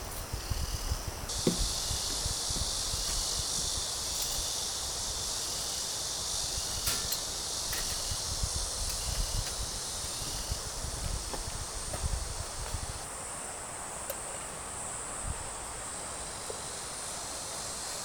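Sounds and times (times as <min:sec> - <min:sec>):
wind rumble on microphone: 0:00.0 - 0:05.7, 0:06.3 - 0:13.1
insects chirring: 0:00.0 - 0:18.0.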